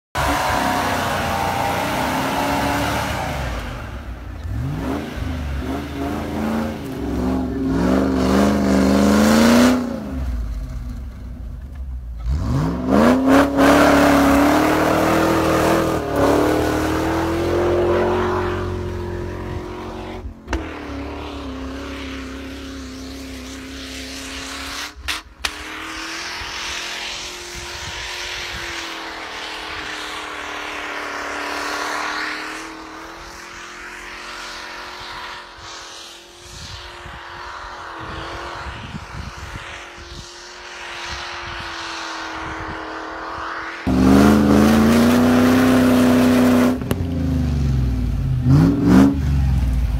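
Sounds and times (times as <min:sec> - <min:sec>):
engine revving hard: 0:00.1 - 0:10.3, 0:12.2 - 0:22.3, 0:43.8 - 0:46.9, 0:48.4 - 0:49.4.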